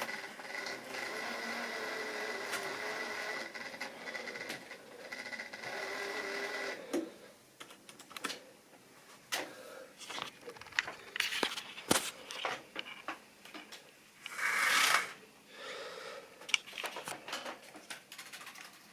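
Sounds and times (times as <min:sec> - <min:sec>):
small electric motor whine: 0:00.0 - 0:06.9.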